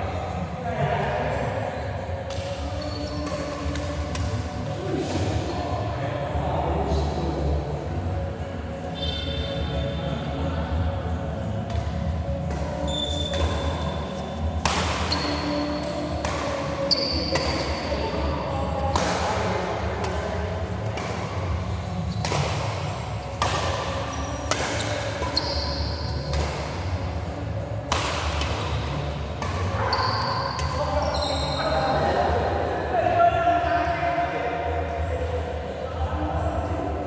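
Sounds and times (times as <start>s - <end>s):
shoe squeaks on court: 2.7s - 4.0s, 8.8s - 10.2s, 12.5s - 18.5s, 23.9s - 26.9s, 29.7s - 32.2s
racket striking shuttlecock: 3.2s - 4.6s, 11.7s - 31.0s.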